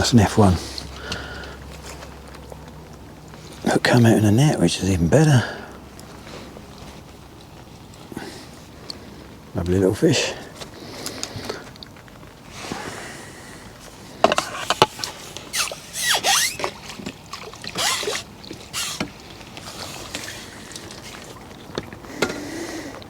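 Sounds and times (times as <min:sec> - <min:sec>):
lake water splashing: 0:10.4 - 0:22.2.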